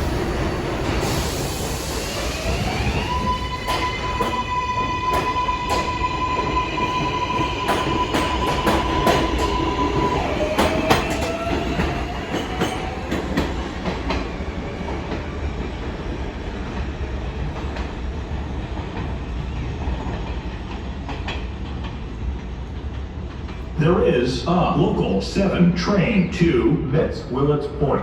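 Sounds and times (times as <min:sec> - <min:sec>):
train rumble: 0:00.0 - 0:28.0
train wheel squeal: 0:00.9 - 0:14.4
wheels clacking over rail joints: 0:02.5 - 0:15.3.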